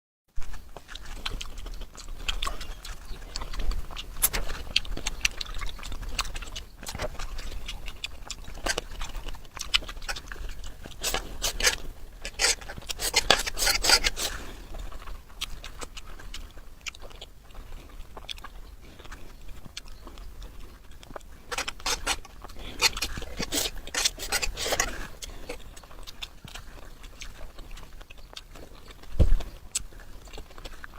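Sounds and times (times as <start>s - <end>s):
chewing and crunching: 0.3s - 30.9s
low thump: 29.2s - 29.4s.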